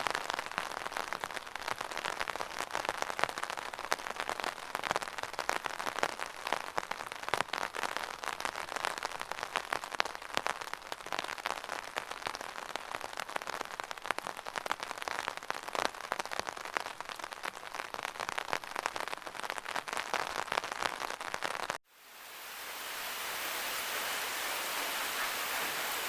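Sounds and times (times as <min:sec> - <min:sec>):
smooth rush of water: 0:21.9 - 0:26.0
rainwater dripping off gutter: 0:22.1 - 0:26.0.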